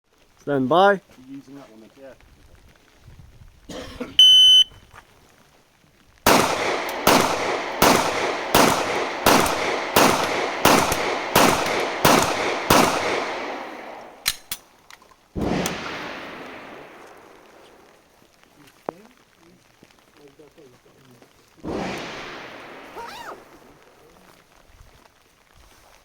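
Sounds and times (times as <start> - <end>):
shot timer beep: 4.2 - 4.8
pistol shots with echo: 6.3 - 14.6, 15.4 - 17.9, 21.6 - 23.8
loud thud: 15.4 - 16.7.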